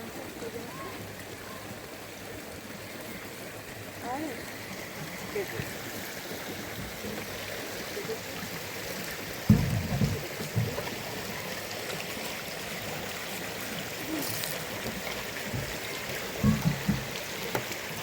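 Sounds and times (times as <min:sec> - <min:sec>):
running water hiss: 0:00.0 - 0:18.0
dull low thumps: 0:09.5 - 0:10.8.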